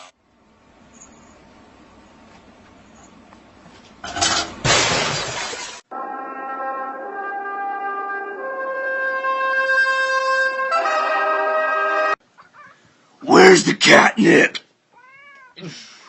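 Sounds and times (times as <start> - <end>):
loud crash: 4.1 - 5.8.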